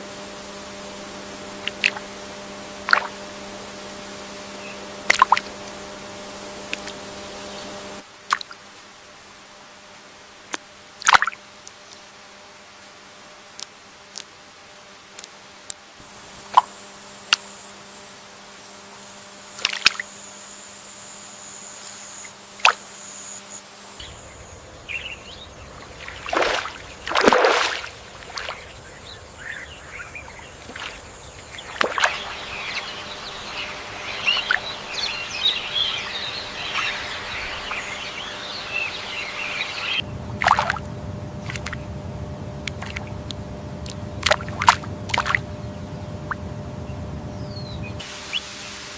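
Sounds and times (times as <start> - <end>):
birds chirping: 3.0 - 7.9, 23.0 - 48.8
water splashes: 5.0 - 5.6, 8.2 - 8.6, 10.5 - 11.4, 25.7 - 28.8, 30.2 - 38.3, 39.8 - 41.9, 42.6 - 45.5
water drips and plops: 40.4 - 40.8, 41.4 - 41.8, 42.6 - 45.4.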